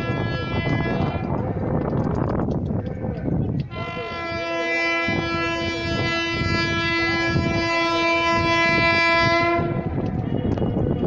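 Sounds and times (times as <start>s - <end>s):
train air horn blast: 0.0s - 1.3s, 3.7s - 11.0s
moving train noise: 0.0s - 11.0s.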